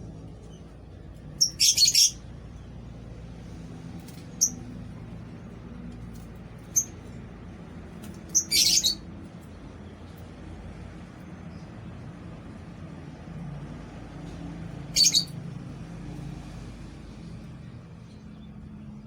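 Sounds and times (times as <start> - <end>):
steady low hum: 0.0 - 19.0
lovebirds chirping: 8.3 - 9.0.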